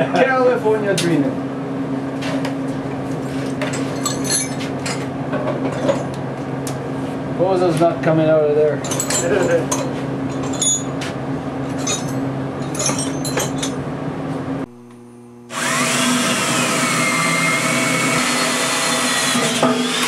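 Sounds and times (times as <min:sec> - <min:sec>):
electric drill cutting steel: 0:15.5 - 0:20.0.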